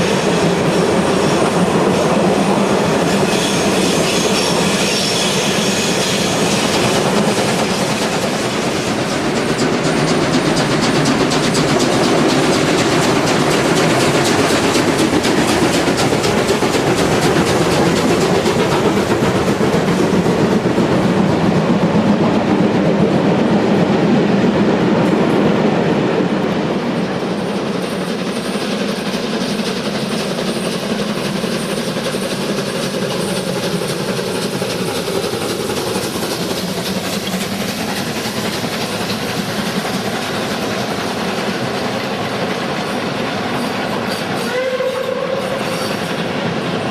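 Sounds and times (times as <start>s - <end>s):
train passing on track: 0.0s - 46.9s.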